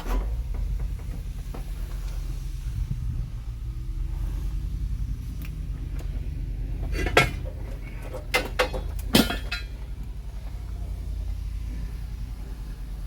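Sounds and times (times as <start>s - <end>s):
steady low rumble: 0.0s - 13.0s
metal tools clinking: 6.8s - 10.1s.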